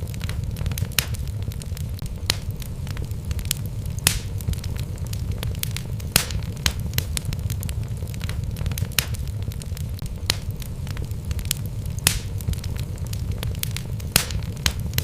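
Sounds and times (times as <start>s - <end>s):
low rumble of flame: 0.0s - 15.0s
wood crackling and popping: 0.0s - 15.0s.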